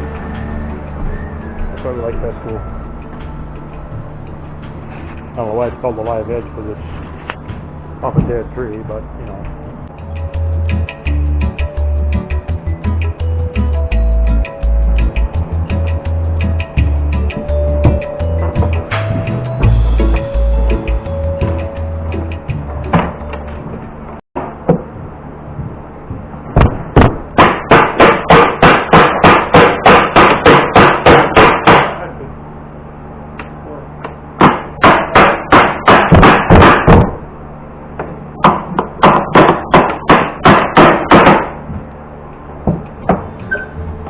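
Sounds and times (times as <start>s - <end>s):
hammer blows on plywood: 24.4s - 32.0s, 34.4s - 37.2s, 38.0s - 41.9s.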